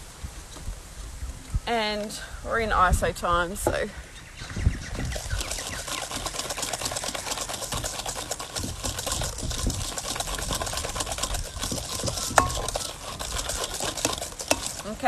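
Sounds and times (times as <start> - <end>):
whisk rattling in bowl: 4.8 - 15.0.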